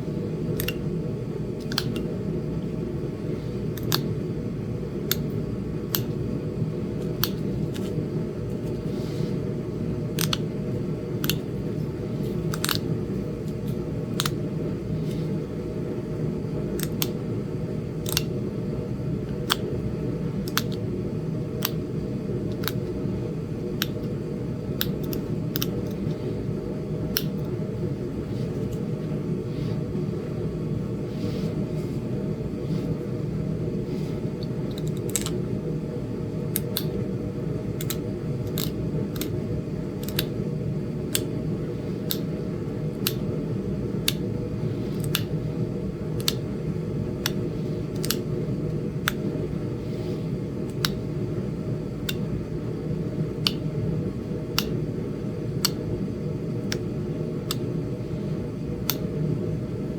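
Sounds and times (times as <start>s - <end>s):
flint knapping clicks: 12.5s - 12.9s.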